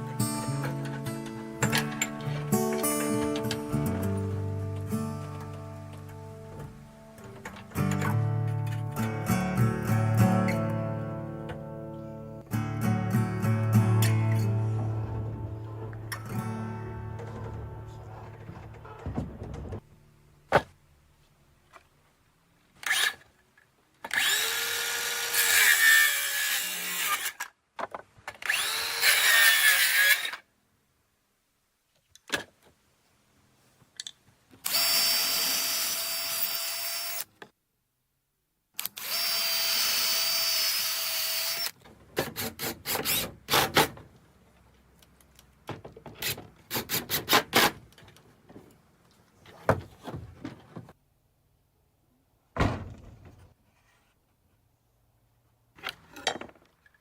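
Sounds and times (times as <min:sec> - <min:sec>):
power drill working wood: 0:24.1 - 0:27.4, 0:28.5 - 0:30.4, 0:34.7 - 0:37.3, 0:39.0 - 0:41.8, 0:42.4 - 0:43.6.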